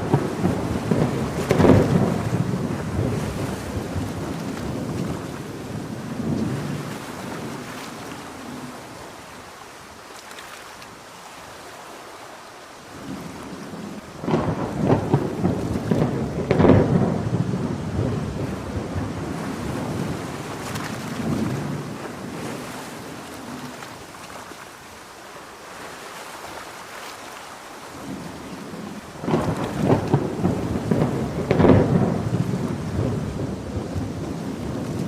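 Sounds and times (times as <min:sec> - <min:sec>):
thunder rumbling: 0:00.0 - 0:09.2, 0:13.0 - 0:23.9, 0:28.0 - 0:35.0
heavy rain: 0:00.0 - 0:35.0.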